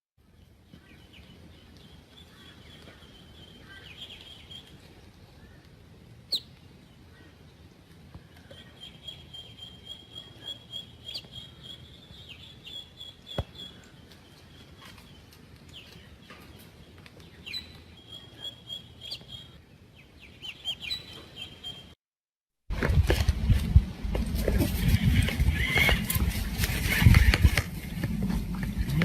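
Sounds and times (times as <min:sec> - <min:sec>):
small birds trilling: 0:08.1 - 0:22.0.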